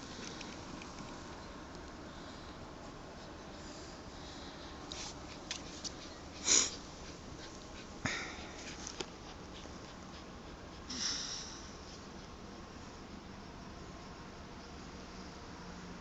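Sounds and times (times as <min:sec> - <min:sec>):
dog sniffing: 0:04.7 - 0:12.6.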